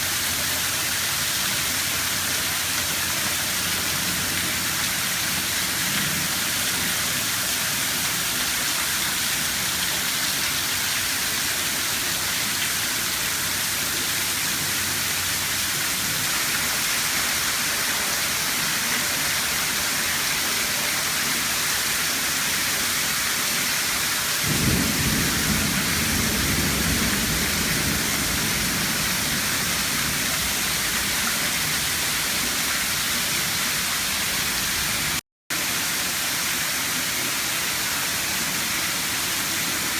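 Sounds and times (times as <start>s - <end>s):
rain falling: 0.0s - 39.9s
thunder rumbling: 24.4s - 32.3s.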